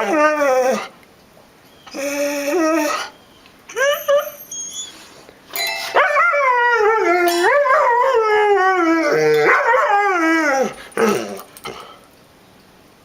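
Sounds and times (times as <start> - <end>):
dog howling: 5.9 - 11.5.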